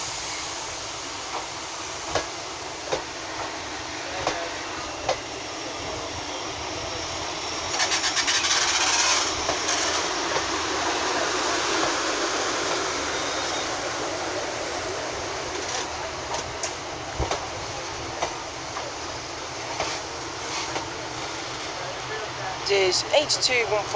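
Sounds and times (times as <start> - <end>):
train wheels rumbling on rail: 0.0 - 23.9
wheels clicking over rail joints: 7.7 - 10.5.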